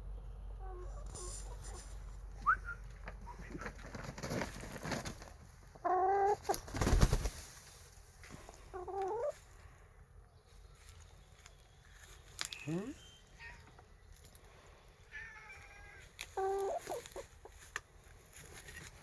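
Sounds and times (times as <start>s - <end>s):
rustling bump: 3.5s - 5.4s
hen calling: 15.0s - 17.2s.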